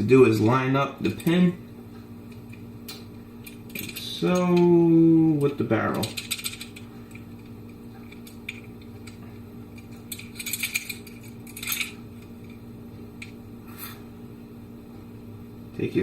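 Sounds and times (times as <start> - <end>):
steady low hum: 0.0 - 16.0
pistol metal parts clicking: 3.4 - 4.7, 5.4 - 12.6.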